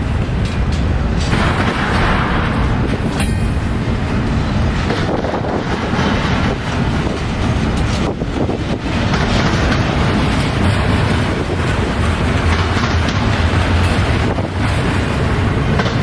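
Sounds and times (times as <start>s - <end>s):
freight train wheels rumbling on track: 0.0s - 16.0s.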